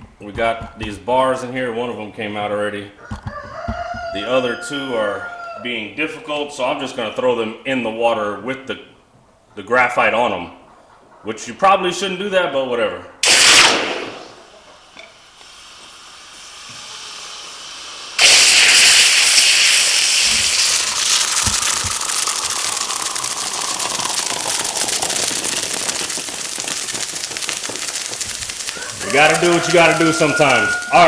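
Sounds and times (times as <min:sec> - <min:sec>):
hot metal sizzling in water: 0:13.2 - 0:31.0.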